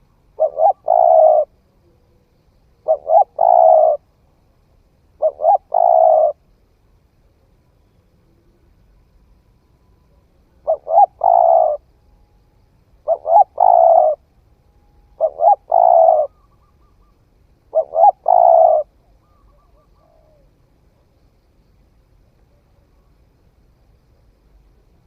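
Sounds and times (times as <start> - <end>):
dove cooing: 0.0 - 2.0, 2.8 - 4.0, 5.2 - 6.4, 10.5 - 11.9, 13.0 - 14.3, 15.1 - 21.1.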